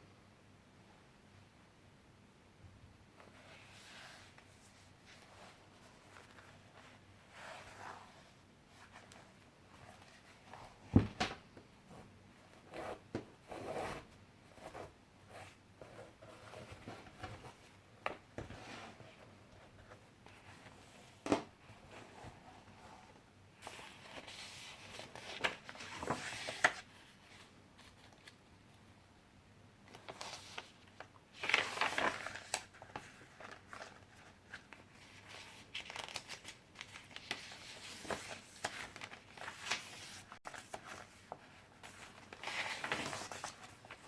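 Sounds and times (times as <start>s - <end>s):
paper pages rustling: 3.2s - 11.4s, 23.6s - 28.4s, 29.9s - 44.0s
soft knocks of pages landing: 10.8s - 11.7s.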